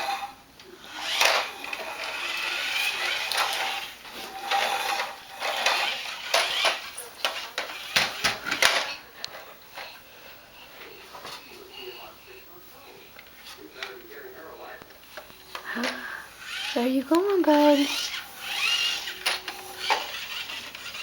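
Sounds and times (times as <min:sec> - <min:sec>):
plastic toy truck clattering: 0:01.0 - 0:09.9, 0:17.2 - 0:21.0.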